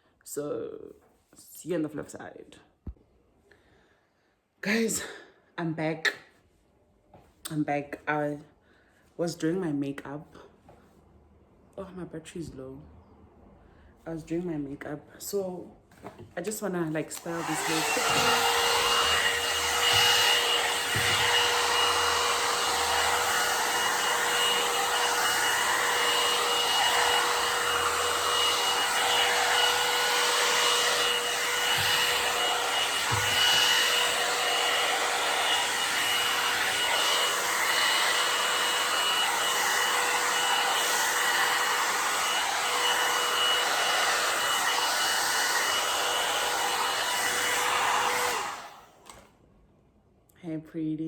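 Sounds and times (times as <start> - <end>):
hair dryer running: 16.1 - 49.3.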